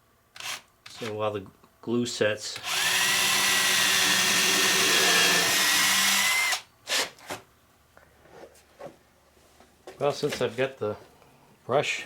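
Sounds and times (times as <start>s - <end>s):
electric power drill running: 2.6s - 6.6s.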